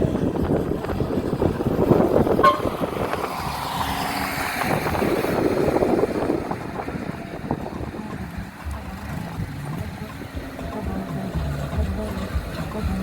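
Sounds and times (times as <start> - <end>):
road vehicle noise: 0.0 - 13.0
wind buffeting microphone: 0.0 - 13.0
horn toot: 2.4 - 3.0.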